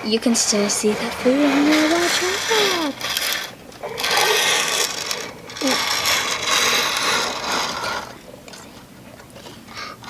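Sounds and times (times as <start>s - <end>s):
plastic toy pieces rattling: 1.0s - 8.6s.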